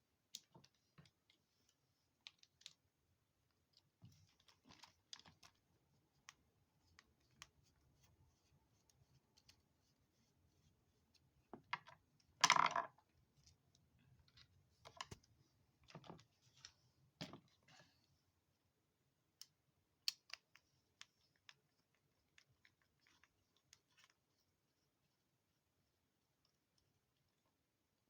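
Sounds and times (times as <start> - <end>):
small parts clicking and tapping: 19.4 - 24.2.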